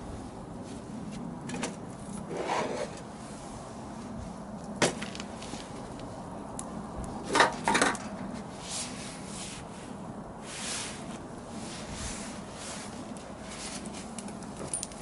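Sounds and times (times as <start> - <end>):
wooden scrapes: 2.3 - 3.0.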